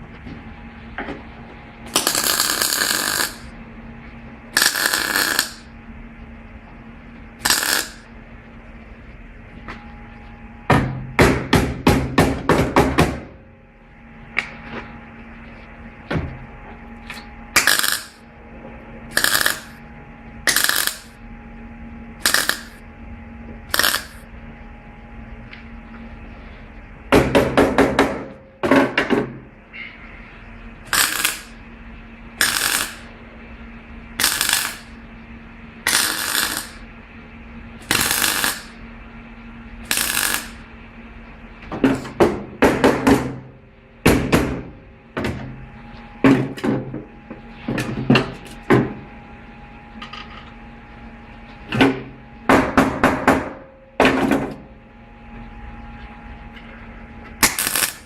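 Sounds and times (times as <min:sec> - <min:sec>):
low hum: 0:13.3 - 0:27.1.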